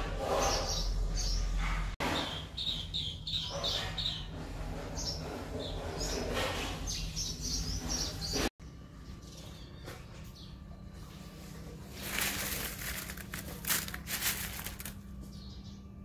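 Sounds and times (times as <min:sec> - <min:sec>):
small birds chirping: 0:00.4 - 0:11.1.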